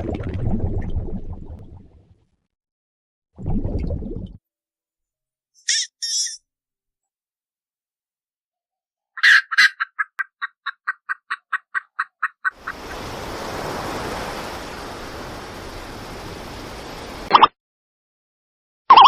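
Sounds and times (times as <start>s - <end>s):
animal clucking: 9.2s - 12.9s.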